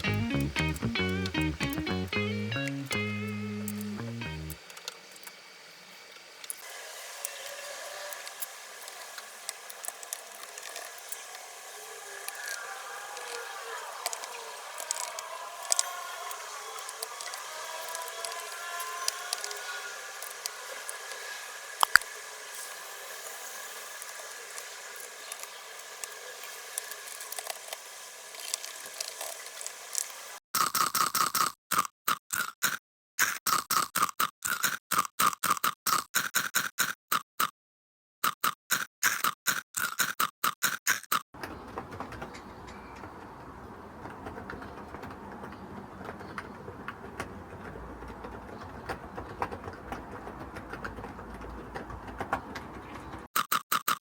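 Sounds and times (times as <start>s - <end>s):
keyboard keys clacking: 0.0s - 5.3s.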